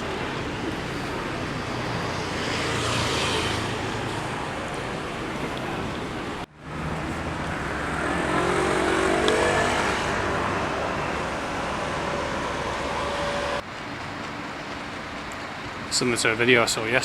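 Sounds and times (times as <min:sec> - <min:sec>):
street traffic noise: 0:00.0 - 0:17.0
vehicle engine accelerating past: 0:06.7 - 0:13.6.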